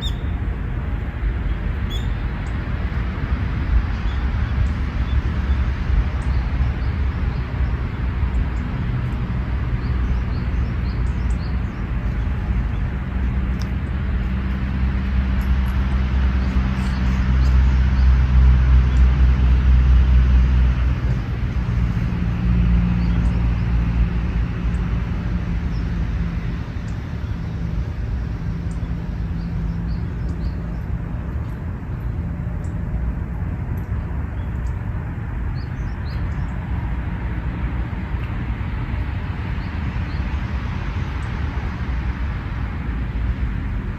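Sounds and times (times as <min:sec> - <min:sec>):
faint bird chirps: 0:00.0 - 0:00.3
outdoor background noise: 0:00.0 - 0:43.9
vehicle engine humming: 0:00.0 - 0:43.9.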